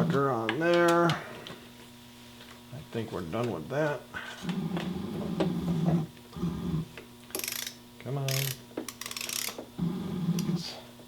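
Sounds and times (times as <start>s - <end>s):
ratchet wrench clicking and rattling: 7.3s - 9.6s.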